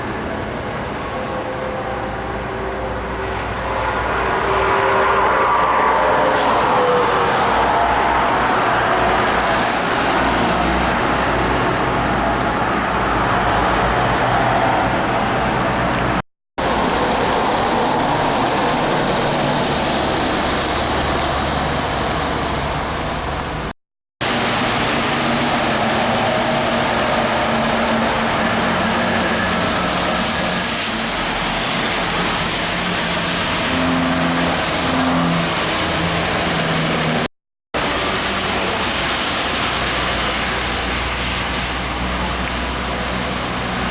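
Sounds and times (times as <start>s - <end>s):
truck engines running: 0.0s - 43.9s
tyres rushing on wet road: 0.0s - 43.9s.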